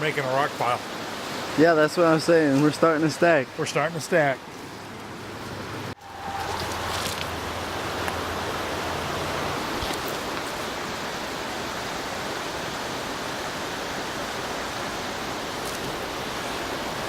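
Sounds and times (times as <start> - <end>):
creek water flowing over rocks: 0.0 - 17.0.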